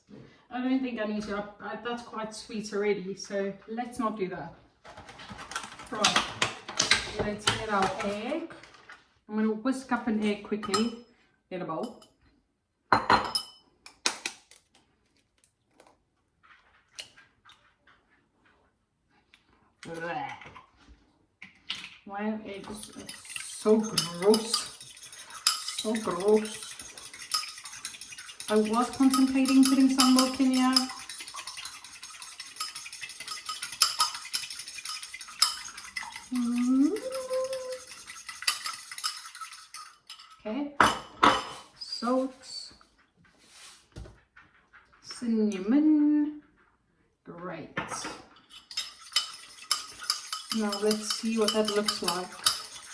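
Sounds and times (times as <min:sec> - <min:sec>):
bowl and cutlery clattering: 0:04.9 - 0:08.2, 0:10.2 - 0:11.0, 0:13.0 - 0:13.7, 0:22.6 - 0:41.7, 0:47.8 - 0:52.9.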